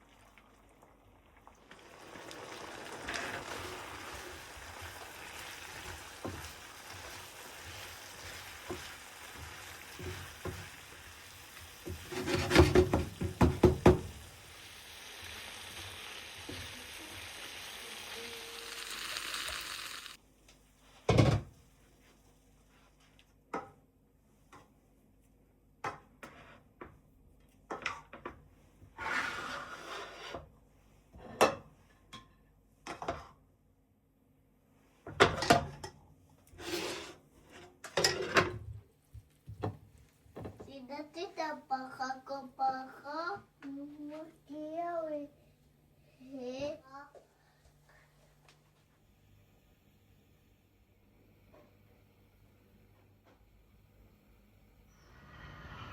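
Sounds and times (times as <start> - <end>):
clattering in kitchen: 11.8 - 14.2, 36.6 - 38.9
steady hiss: 14.2 - 20.2.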